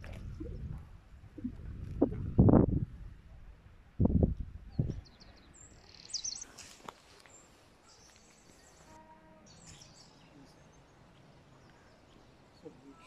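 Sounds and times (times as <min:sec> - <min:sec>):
faint outdoor hiss: 0:00.0 - 0:13.0
birds chirping: 0:04.3 - 0:13.0.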